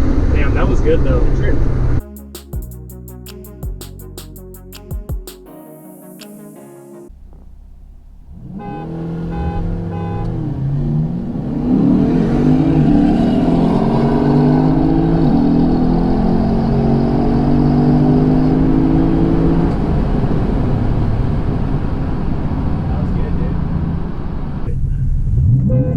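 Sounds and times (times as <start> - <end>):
car engine accelerating hard: 7.1 - 25.9.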